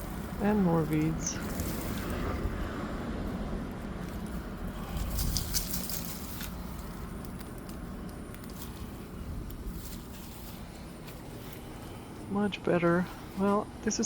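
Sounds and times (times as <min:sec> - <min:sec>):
leaves and stems rustling: 0:00.0 - 0:14.0
low rumble: 0:00.0 - 0:14.0.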